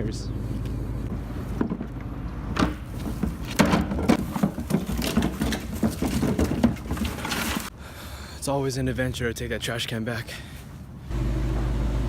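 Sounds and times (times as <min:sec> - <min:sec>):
plastic trash bin rolling on pavement: 0:01.4 - 0:07.7.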